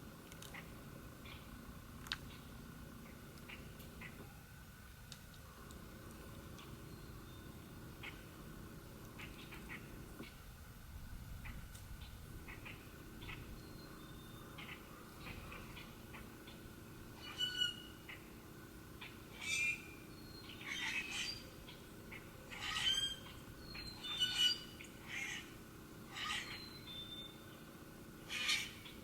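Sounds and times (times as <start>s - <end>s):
birds chirping: 0.5s - 4.4s, 5.8s - 10.4s, 11.4s - 29.0s
birds squawking: 7.9s - 8.4s, 11.4s - 18.4s, 19.0s - 27.4s, 28.2s - 29.0s.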